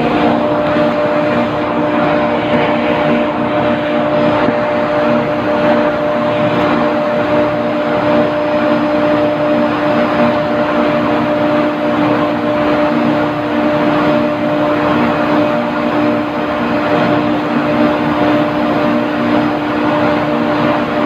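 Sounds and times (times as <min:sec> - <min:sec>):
even rushing noise: 0:00.0 - 0:10.6
machinery hum: 0:00.0 - 0:21.0.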